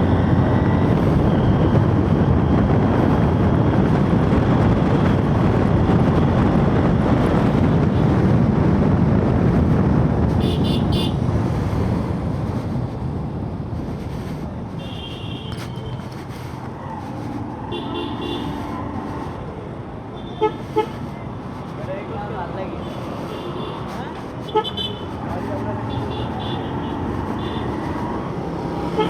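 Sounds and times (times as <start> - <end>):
motorcycle engine and wind noise: 0.0 - 20.1
motorcycle horn toots: 10.4 - 11.2.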